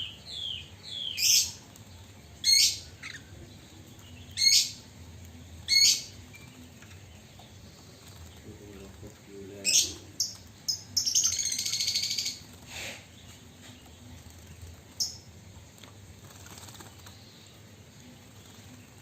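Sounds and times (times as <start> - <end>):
bird chirps: 0.0 - 4.9, 5.5 - 15.3.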